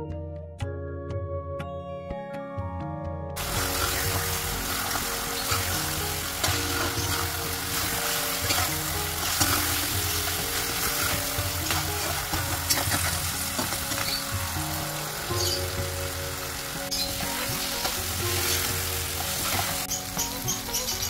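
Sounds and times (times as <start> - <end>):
background music: 0.0 - 21.0
spoon scraping a pan: 3.4 - 14.2
gravy sizzling in a pan: 3.4 - 21.0.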